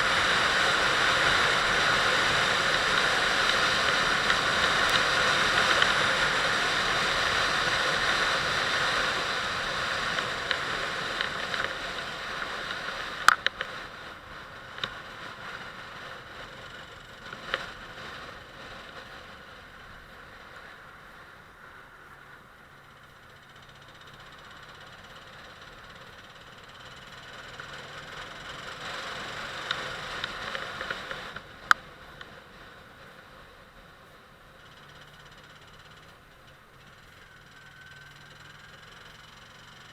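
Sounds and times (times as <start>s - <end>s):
rushing wind: 0.0s - 23.1s
faint engine: 0.0s - 39.9s
vehicle road noise: 0.0s - 39.9s.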